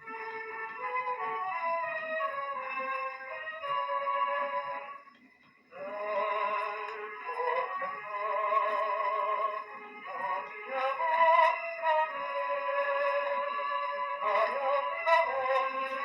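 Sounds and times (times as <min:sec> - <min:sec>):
gramophone music with vibrato melody: 0:00.0 - 0:16.0.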